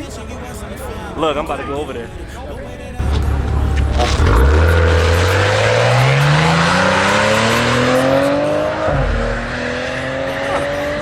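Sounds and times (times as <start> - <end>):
car engine accelerating: 2.7 - 11.0.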